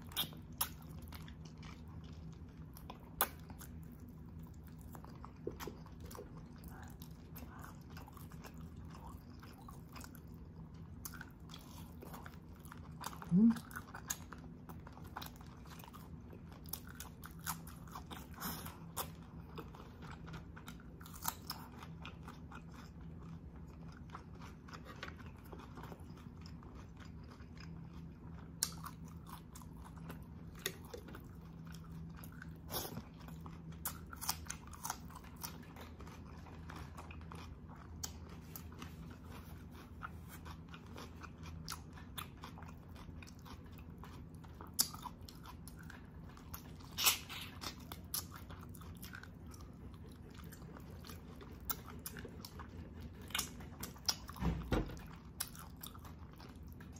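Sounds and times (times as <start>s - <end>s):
chewing and biting meat: 0.0s - 56.9s
steady low hum: 0.0s - 56.9s
wet mouth sounds: 13.2s - 13.6s, 46.9s - 48.3s.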